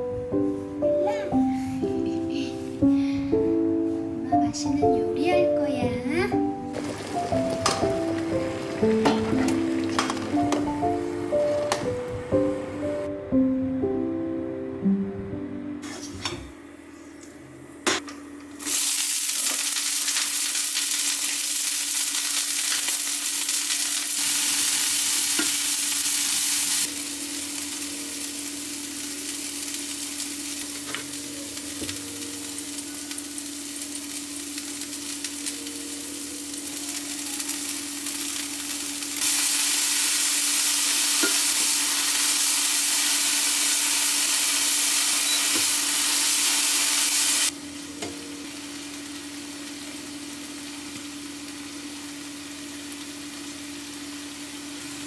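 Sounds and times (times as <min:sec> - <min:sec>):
sprouts sizzling in frying pan: 0:06.6 - 0:11.9, 0:18.6 - 0:55.0.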